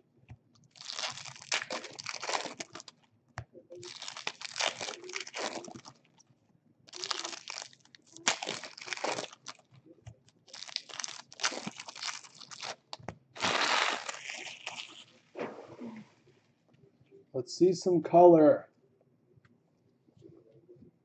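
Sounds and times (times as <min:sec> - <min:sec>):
card pack wrappers crinkling: 0:00.6 - 0:03.1, 0:03.7 - 0:06.2, 0:06.9 - 0:15.2.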